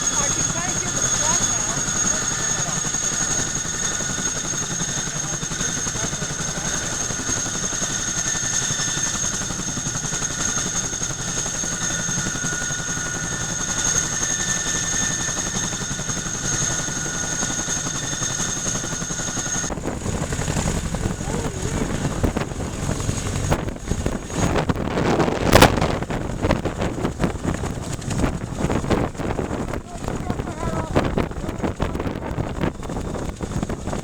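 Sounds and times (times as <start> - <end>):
fast rotor beat: 0.0 - 23.5
helicopter turbine whine: 0.0 - 34.0.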